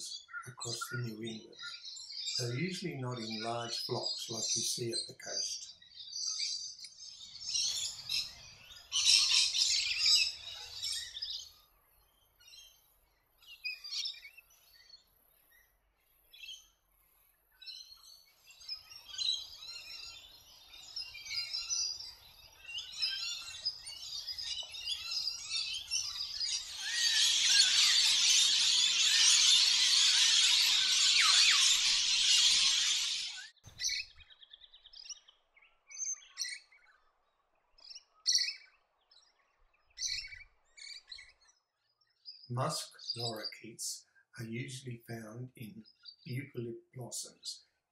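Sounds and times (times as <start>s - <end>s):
lorikeets chattering calls: 0.0s - 11.6s, 18.7s - 34.4s, 35.9s - 36.8s, 37.9s - 38.7s, 40.0s - 41.5s.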